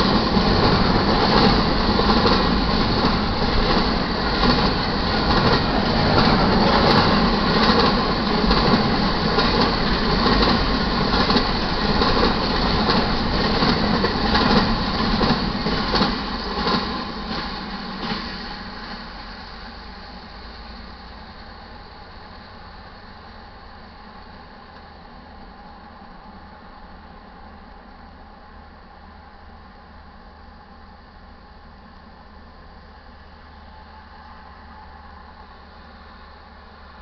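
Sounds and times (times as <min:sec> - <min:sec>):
train wheels clattering over rails: 0:00.0 - 0:19.1.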